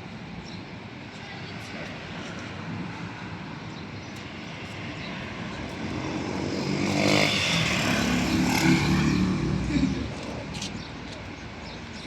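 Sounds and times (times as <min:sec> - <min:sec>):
engine passing close: 0:05.9 - 0:10.5.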